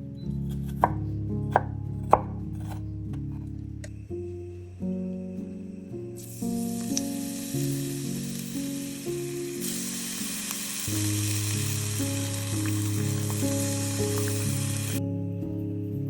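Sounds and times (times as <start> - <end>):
soft background music: 0.0 - 16.0
food sizzling in a pan: 6.2 - 15.0.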